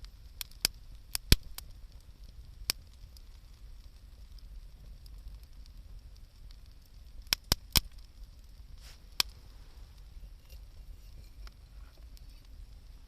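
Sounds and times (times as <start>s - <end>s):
campfire crackling: 0.0s - 13.0s
sharp wood pops: 0.4s - 1.6s, 7.2s - 8.0s.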